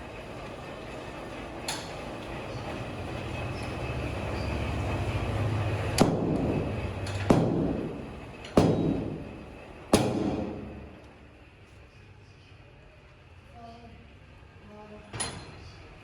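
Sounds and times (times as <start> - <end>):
low machine rumble: 0.0 - 16.0
sharp ringing knocks: 6.0 - 10.8.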